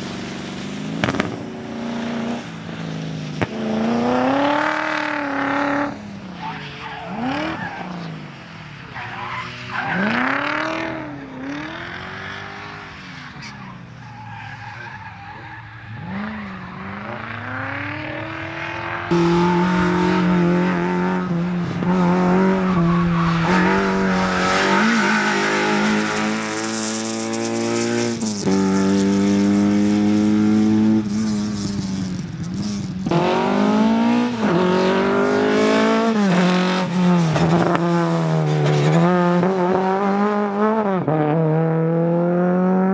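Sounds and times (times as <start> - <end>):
rally car engines revving: 0.0 - 42.9
tyre squeal: 13.0 - 17.1, 22.4 - 26.6.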